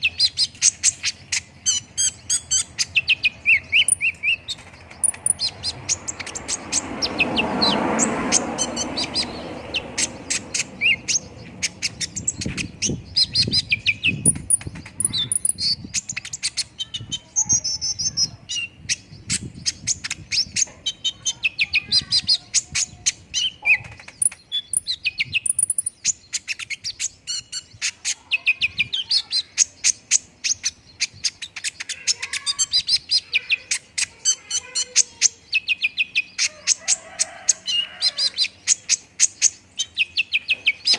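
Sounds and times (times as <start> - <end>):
bird singing chirps and trills: 0.0 - 40.9
rush of noise: 4.6 - 15.2.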